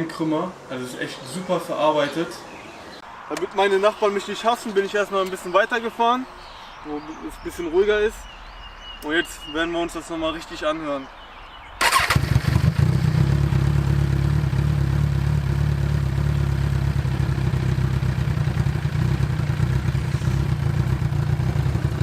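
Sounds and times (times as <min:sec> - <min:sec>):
motorcycle engine idling: 0:11.8 - 0:22.0.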